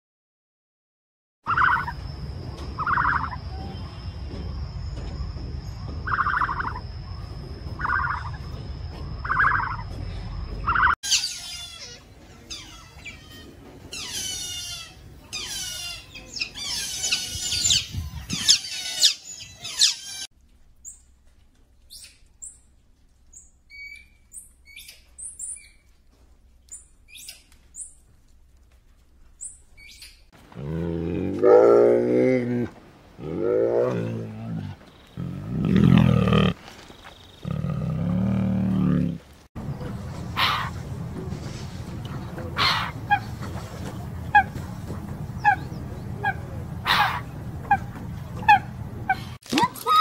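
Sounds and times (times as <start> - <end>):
monkey high peeps: 1.5 - 2.0, 9.2 - 9.9, 10.6 - 21.0, 40.3 - 40.8, 42.6 - 43.4, 45.4 - 50.0
low rumble: 1.8 - 11.0, 37.4 - 49.4
otter chirps and squeaks: 2.7 - 3.6, 5.9 - 6.8, 9.2 - 9.9, 10.6 - 20.3.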